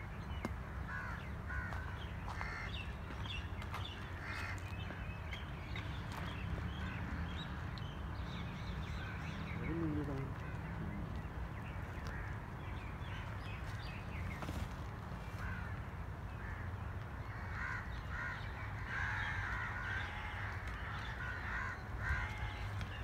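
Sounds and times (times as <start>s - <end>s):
birds calling: 0.0s - 23.0s.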